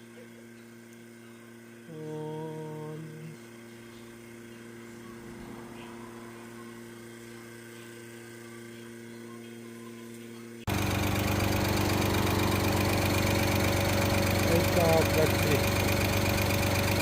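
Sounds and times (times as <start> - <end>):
steady machine hum: 0.0 - 17.0
car engine idling: 10.7 - 17.0.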